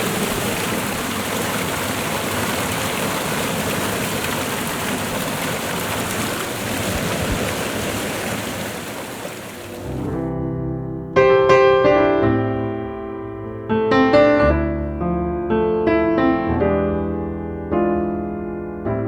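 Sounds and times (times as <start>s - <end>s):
rushing water: 0.0s - 10.3s.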